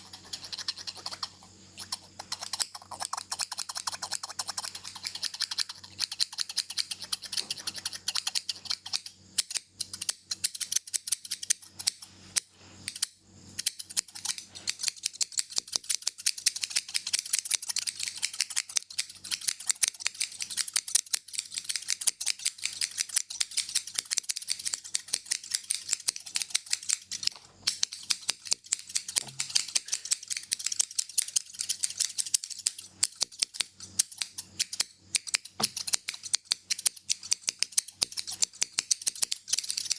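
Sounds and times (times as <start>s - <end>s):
scissors snipping hair: 0.0s - 39.9s.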